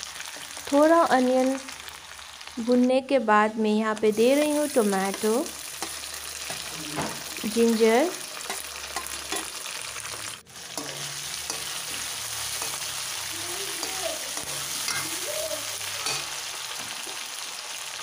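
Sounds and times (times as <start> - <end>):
vegetables sizzling in hot oil: 0.0 - 18.0
metal ladle clinking against pan: 16.0 - 16.4.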